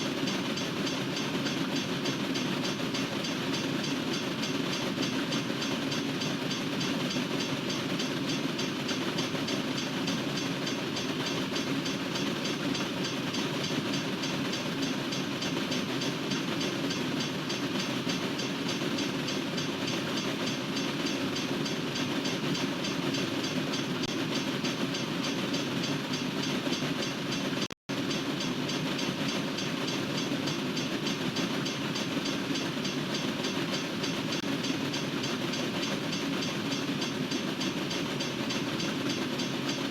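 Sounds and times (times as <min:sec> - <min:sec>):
freight train wheels rumbling on rails: 0:00.0 - 0:39.9.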